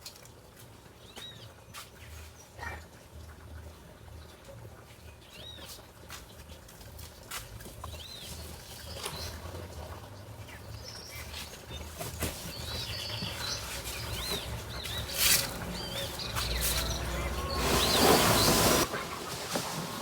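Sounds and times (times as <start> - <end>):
chicks peeping: 11.1 - 19.4.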